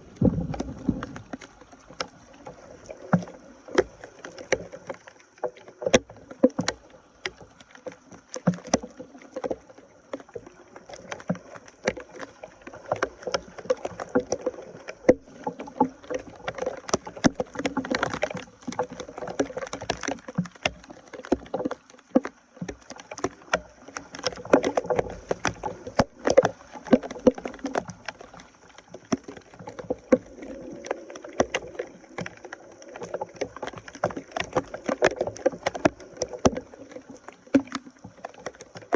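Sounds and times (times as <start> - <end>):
water splashing and sloshing: 0.0 - 38.9
sharp snaps and knocks: 0.2 - 38.9.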